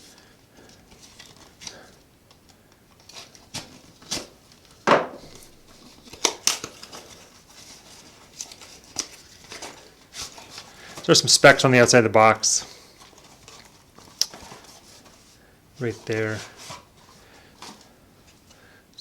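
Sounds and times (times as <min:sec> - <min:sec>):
cardboard flaps handled: 0:03.2 - 0:07.0.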